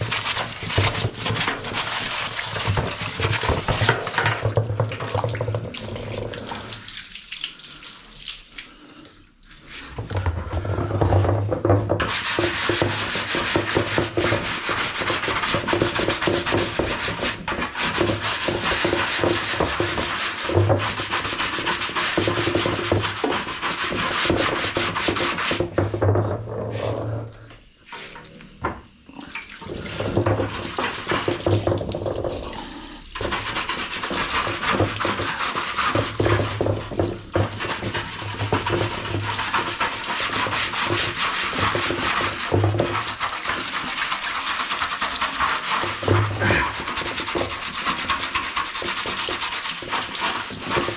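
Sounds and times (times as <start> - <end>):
brush scrubbing plastic: 0.0 - 8.2, 9.6 - 27.2, 29.6 - 32.4, 33.0 - 50.9.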